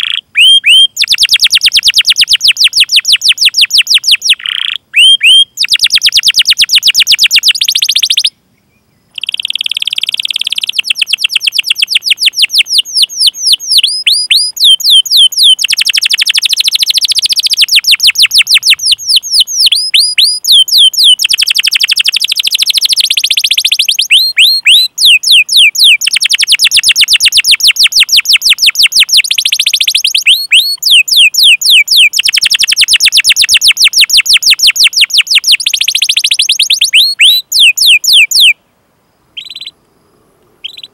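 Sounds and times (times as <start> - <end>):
canary singing chip notes: 9.1 - 38.6, 39.4 - 40.9.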